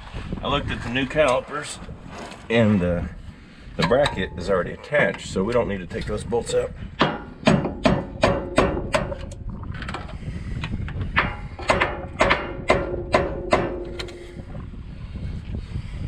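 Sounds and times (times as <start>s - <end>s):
hammer striking metal: 7.0s - 9.2s, 11.2s - 14.1s.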